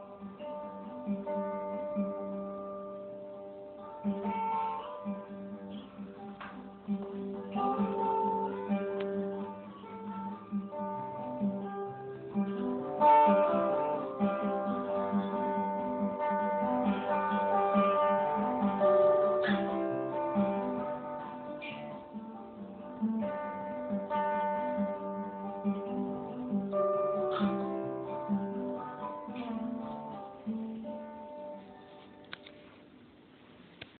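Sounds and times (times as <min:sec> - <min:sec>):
acoustic guitar playing: 0:00.0 - 0:33.9.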